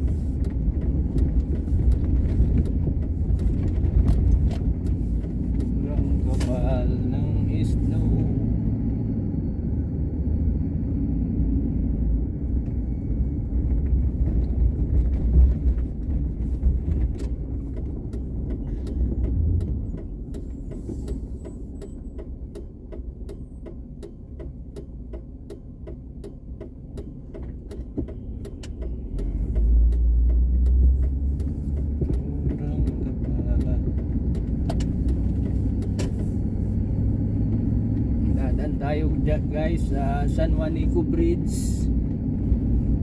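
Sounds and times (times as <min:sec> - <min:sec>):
regular ticking: 0:00.0 - 0:08.1, 0:15.8 - 0:41.8
car engine and tyres rumbling: 0:00.0 - 0:43.0.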